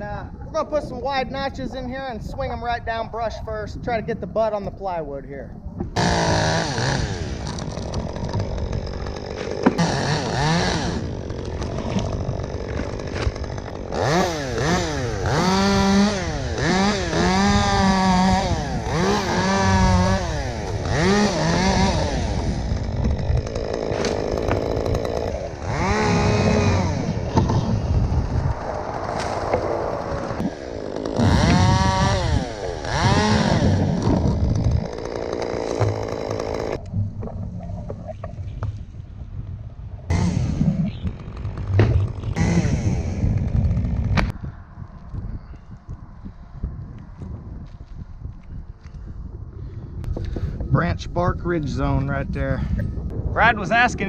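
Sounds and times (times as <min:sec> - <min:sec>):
chainsaw cutting limbs: 0:05.9 - 0:36.9, 0:40.1 - 0:44.4.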